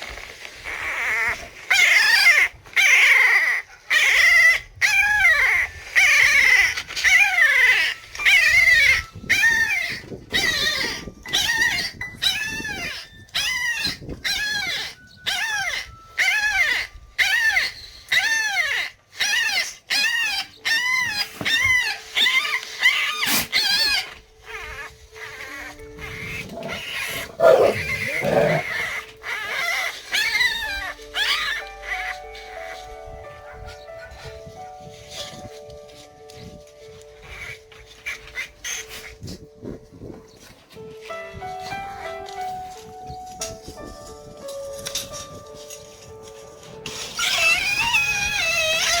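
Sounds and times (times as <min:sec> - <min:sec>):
dog whining: 0:00.6 - 0:35.5, 0:46.9 - 0:49.0.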